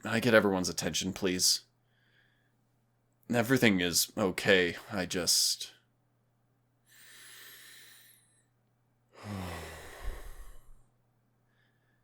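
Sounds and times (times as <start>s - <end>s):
man breathing in deeply: 6.9s - 8.5s, 9.2s - 10.9s
man sighing: 9.2s - 10.7s.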